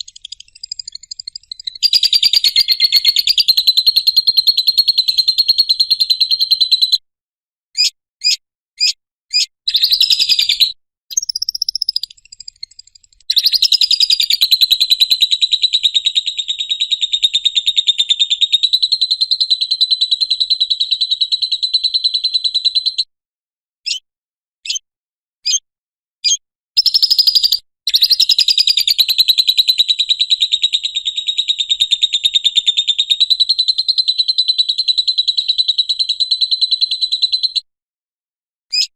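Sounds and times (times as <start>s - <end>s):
lovebird short chirps: 0.0s - 4.3s, 7.8s - 15.8s
lovebird shrill chattering trill: 0.0s - 6.9s, 7.8s - 20.0s.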